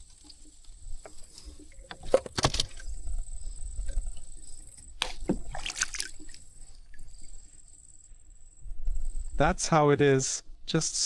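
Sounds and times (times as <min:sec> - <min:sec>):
water splashing and sloshing: 0:00.0 - 0:07.6.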